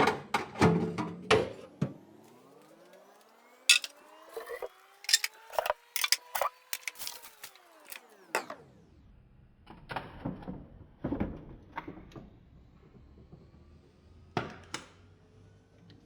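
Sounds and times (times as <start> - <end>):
household items knocking and clattering: 3.7 - 3.9, 5.1 - 8.0.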